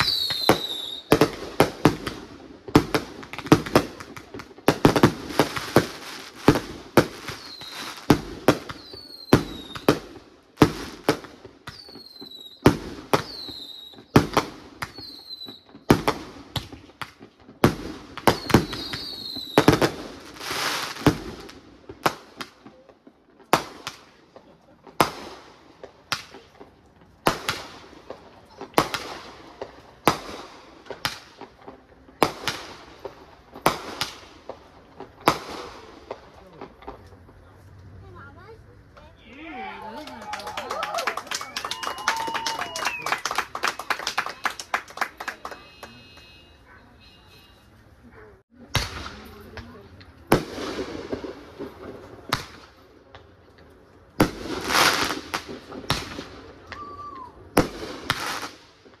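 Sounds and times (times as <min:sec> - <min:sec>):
fireworks falling whistles: 0:00.0 - 0:02.2, 0:05.4 - 0:16.9, 0:17.6 - 0:21.5, 0:39.8 - 0:47.8, 0:54.2 - 0:58.6
fireworks bursting bangs: 0:00.0 - 0:37.4, 0:48.4 - 0:59.0.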